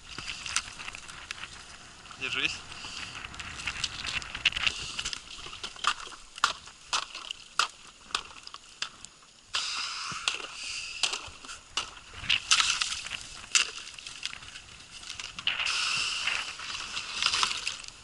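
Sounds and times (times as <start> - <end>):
ice cracking and crunching: 0.0 - 9.1, 10.2 - 18.0
hiss: 9.5 - 11.6, 15.5 - 17.4.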